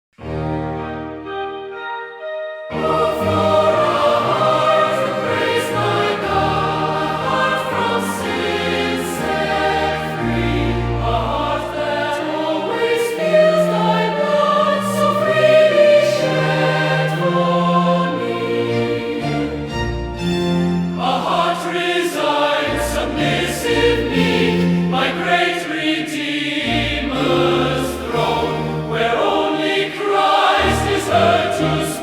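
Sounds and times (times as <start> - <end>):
choir singing a slow hymn: 2.7 - 32.0.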